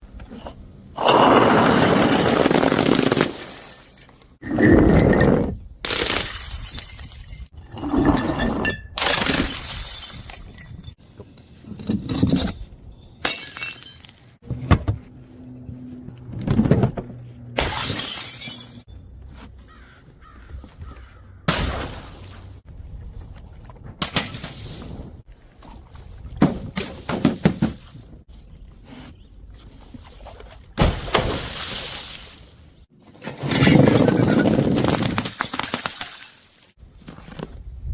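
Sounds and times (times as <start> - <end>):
glass bottles smashing: 1.7 - 4.4, 5.9 - 11.0, 13.2 - 14.4, 17.6 - 18.9, 33.4 - 36.8.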